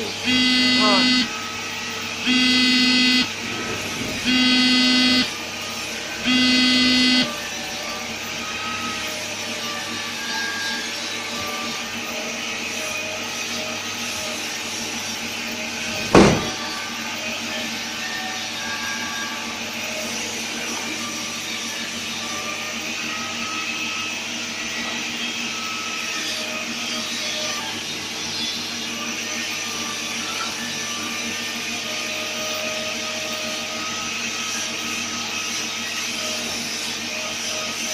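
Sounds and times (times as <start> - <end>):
loud buzzer tone: 0.0 - 7.8
machine whirring: 0.0 - 11.8.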